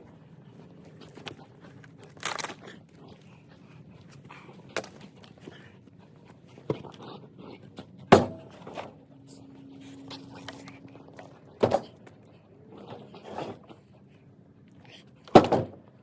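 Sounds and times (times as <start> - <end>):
firewood thunking into vehicle bed: 15.4 - 15.8.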